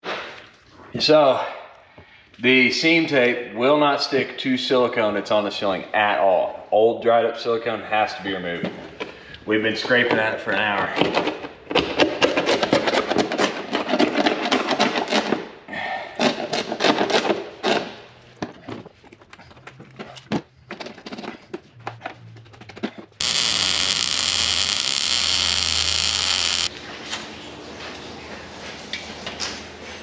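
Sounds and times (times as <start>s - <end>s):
loud steady hiss: 23.2s - 26.7s.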